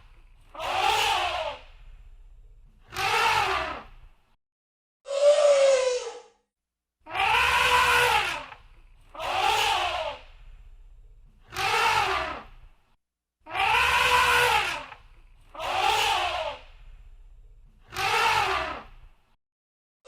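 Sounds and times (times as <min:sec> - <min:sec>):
low hum: 0:01.6 - 0:02.8, 0:10.2 - 0:11.4, 0:16.7 - 0:17.8
elephant trumpeting: 0:07.1 - 0:08.6, 0:13.5 - 0:15.0.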